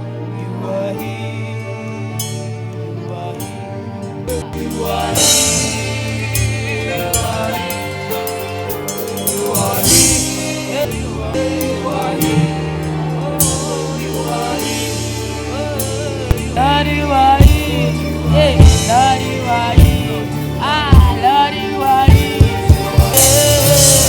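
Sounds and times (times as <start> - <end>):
saxophone lead line: 0.0 - 24.0
sustained keyboard chords: 0.0 - 24.0
light drum kit: 4.6 - 10.8, 11.4 - 24.0.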